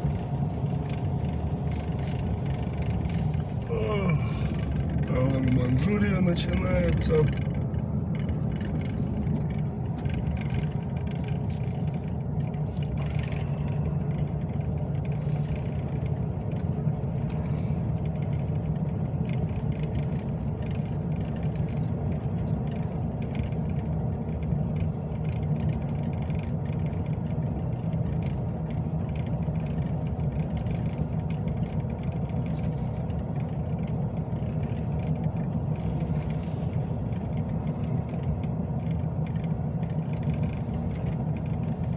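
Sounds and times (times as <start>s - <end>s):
faint light rattles: 0.0s - 41.9s
truck engine and road rumble: 0.0s - 41.9s.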